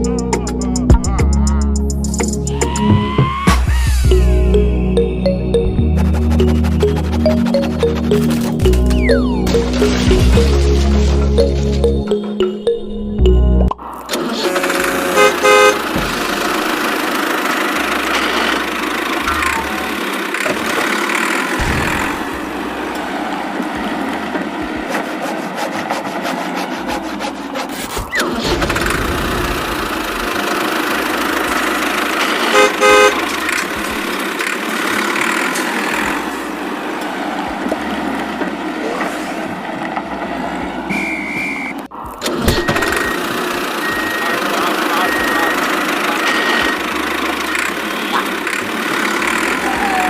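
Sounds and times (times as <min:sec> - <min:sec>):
vehicle engine running: 0:03.7 - 0:50.0
horn toots: 0:14.1 - 0:16.4, 0:32.4 - 0:33.6, 0:40.9 - 0:41.9.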